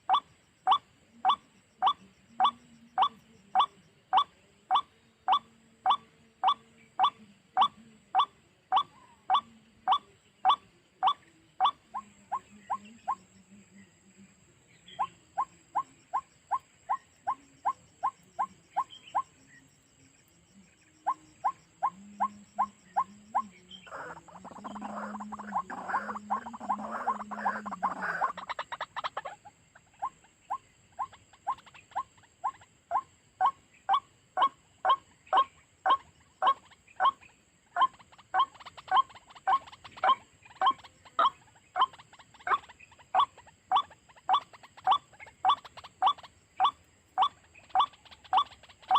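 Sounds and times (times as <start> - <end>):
harsh bird chattering: 0.0 - 13.4, 14.7 - 19.4, 21.0 - 48.9
waterhen calling: 21.1 - 29.3, 37.8 - 48.9.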